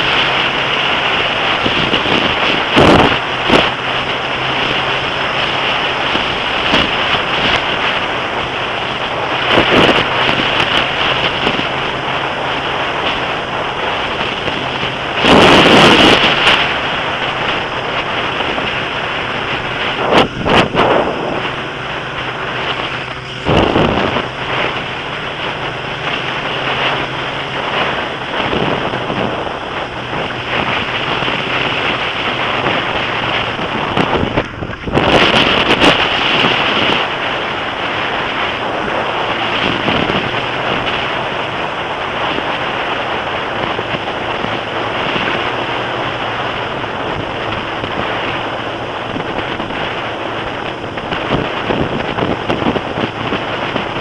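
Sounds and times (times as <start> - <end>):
motorcycle engine hum: 0.0 - 54.0
wind buffeting microphone: 0.0 - 54.0.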